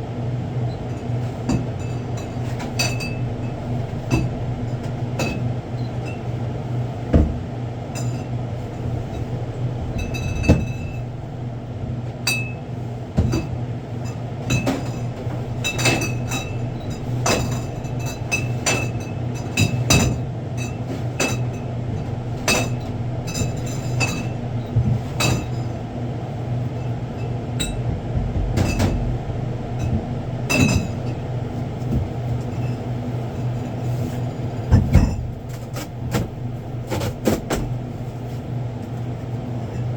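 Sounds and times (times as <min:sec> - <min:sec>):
steady low hum: 0:00.0 - 0:39.9
bottles and goods clinking and knocking: 0:09.0 - 0:11.1, 0:13.2 - 0:25.8, 0:27.1 - 0:37.8.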